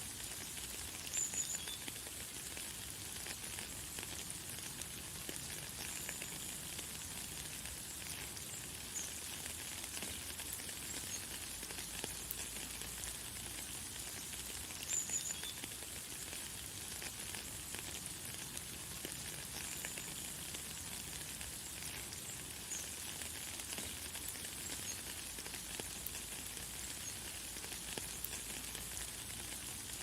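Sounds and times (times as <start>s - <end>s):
light rain hiss: 0.0s - 30.0s.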